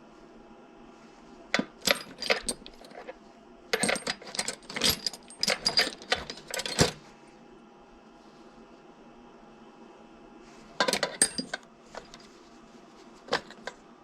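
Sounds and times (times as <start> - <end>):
metal parts clinking and rattling: 1.6 - 3.1, 3.8 - 7.0, 10.8 - 12.2, 13.3 - 13.8.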